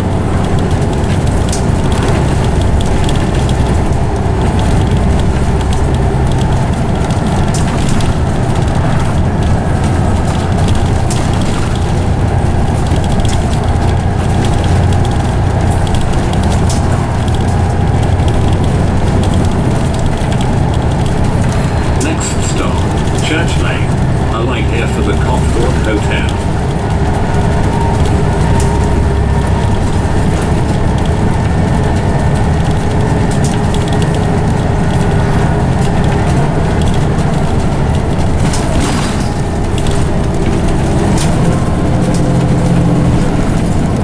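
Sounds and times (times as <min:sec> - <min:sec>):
small interior rattles: 0:00.0 - 0:24.3
bus engine droning: 0:00.0 - 0:44.0.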